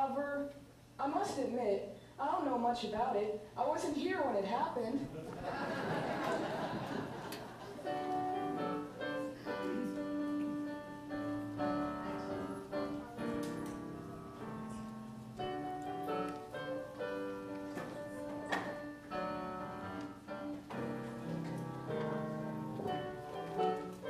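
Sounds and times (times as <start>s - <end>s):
piano chords and melody: 7.8s - 24.0s.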